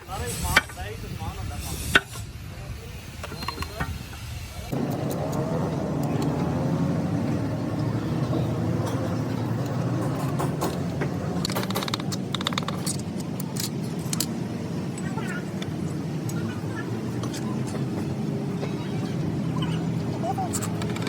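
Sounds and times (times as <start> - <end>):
motor humming: 4.7 - 21.0.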